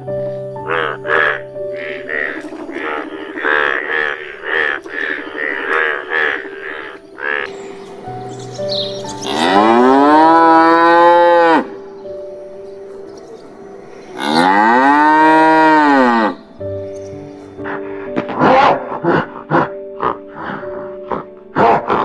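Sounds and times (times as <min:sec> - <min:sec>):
frogs croaking: 0:00.0 - 0:22.0
cow mooing: 0:09.2 - 0:11.8, 0:14.2 - 0:16.5.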